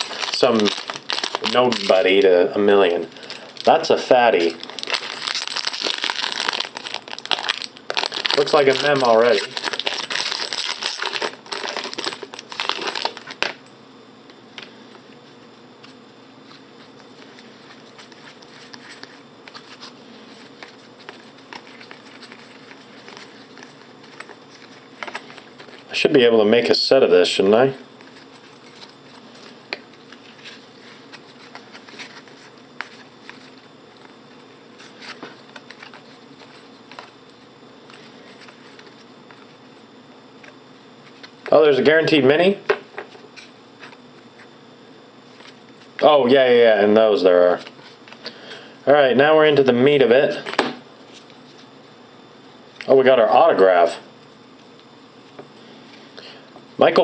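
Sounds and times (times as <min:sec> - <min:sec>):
wrapper crinkling: 0:00.0 - 0:02.2, 0:04.4 - 0:13.4
trading cards handled: 0:00.0 - 0:02.3, 0:03.1 - 0:13.6, 0:15.8 - 0:25.9, 0:28.0 - 0:39.6
steady low hum: 0:00.0 - 0:57.0.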